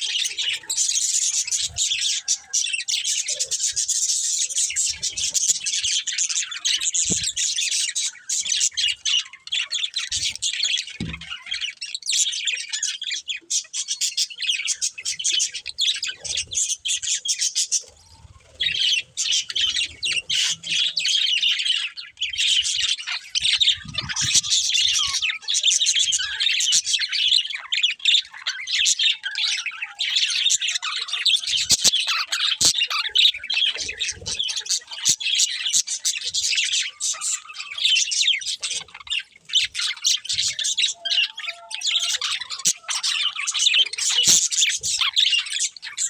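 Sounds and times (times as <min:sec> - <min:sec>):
budgerigars chirping: 0:00.0 - 0:46.0.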